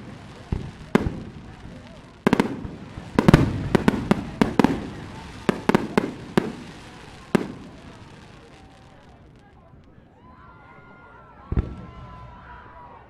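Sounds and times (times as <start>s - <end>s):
fireworks bangs: 0.0s - 9.7s.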